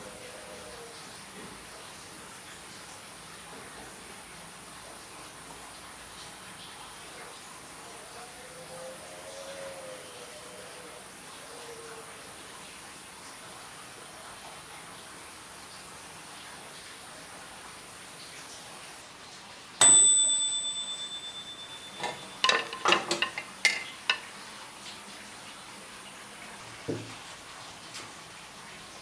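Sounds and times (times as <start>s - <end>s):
bell-like ding: 19.8s - 23.8s
clattering knocks: 21.7s - 24.3s
soft thump: 26.9s - 27.2s.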